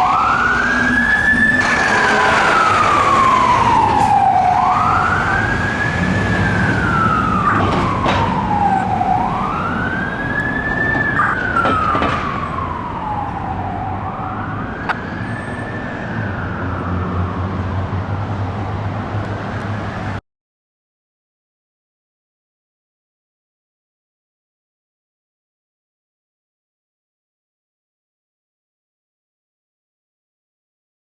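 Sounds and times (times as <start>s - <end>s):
fire engine siren wailing: 0.0s - 19.2s.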